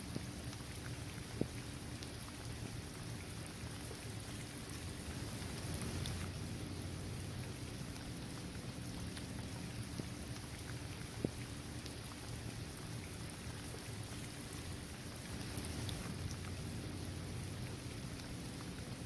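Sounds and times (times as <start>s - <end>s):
low steady rumble: 0.0s - 19.0s
rain falling: 0.0s - 19.0s
raindrops ticking: 5.2s - 19.0s.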